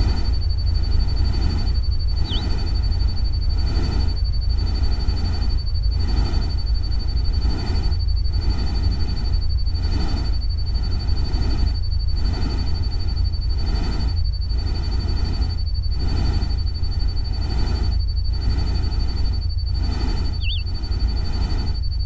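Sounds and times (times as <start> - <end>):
thin high tone: 2.2 - 2.6, 20.4 - 20.7.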